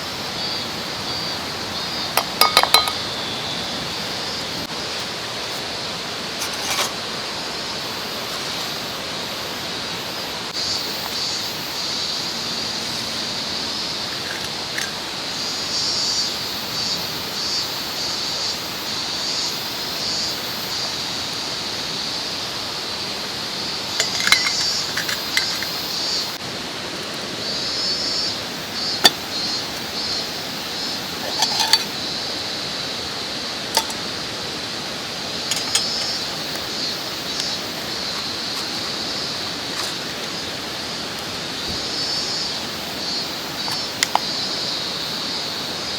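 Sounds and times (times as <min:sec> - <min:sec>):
insects trilling: 0:00.0 - 0:45.9
mountain stream rushing: 0:00.0 - 0:45.9
sharp clicks and clinks: 0:02.2 - 0:03.0, 0:24.0 - 0:25.8, 0:31.2 - 0:32.0, 0:33.8 - 0:34.0, 0:35.4 - 0:36.3.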